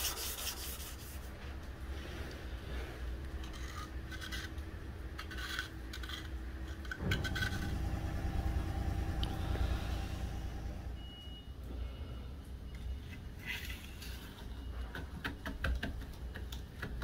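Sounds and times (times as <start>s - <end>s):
low machine hum: 1.3s - 15.0s
motor running: 7.0s - 11.0s.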